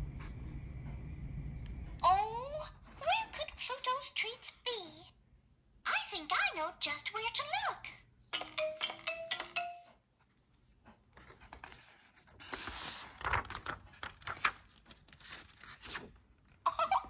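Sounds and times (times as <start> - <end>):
paper page rustling: 11.2 - 16.3.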